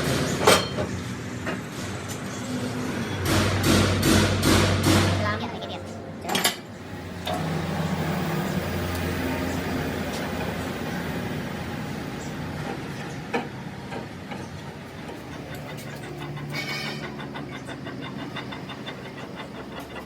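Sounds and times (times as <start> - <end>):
machine motor running: 6.8 - 13.1, 14.0 - 20.0.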